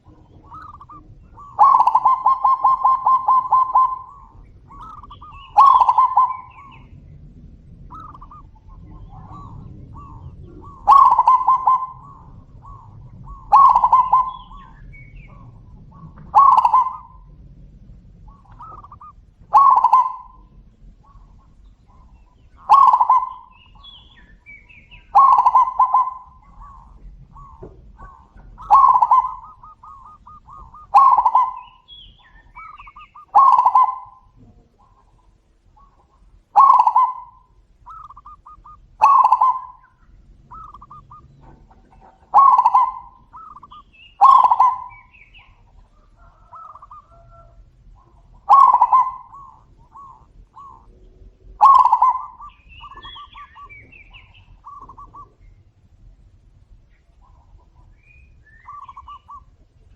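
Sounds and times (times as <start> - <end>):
faint trilled coos: 0.0 - 24.4, 25.0 - 59.9
doves trilling coo: 0.0 - 59.9.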